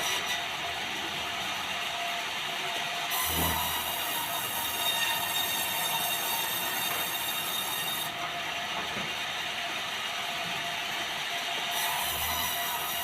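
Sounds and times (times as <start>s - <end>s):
sawmill saw whining: 0.0s - 13.0s.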